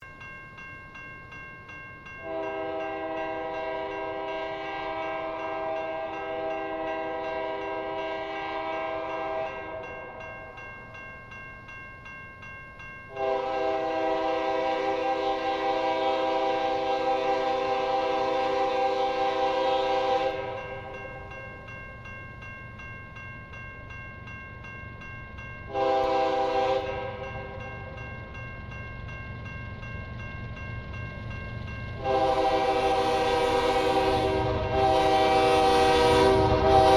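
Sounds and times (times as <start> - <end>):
locomotive air horn blasts: 2.2 - 9.8, 13.1 - 20.6, 25.7 - 27.2, 32.0 - 36.9
train low rumble: 13.1 - 36.9.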